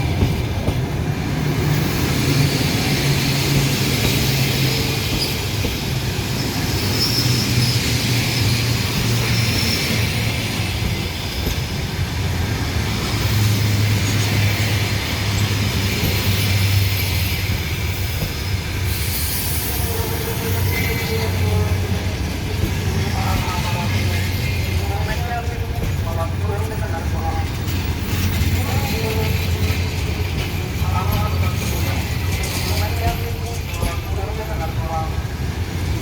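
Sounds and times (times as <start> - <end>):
train wheels rumbling on rails: 0.0 - 36.0
wheel and brake squeals: 2.4 - 11.8, 16.1 - 21.3.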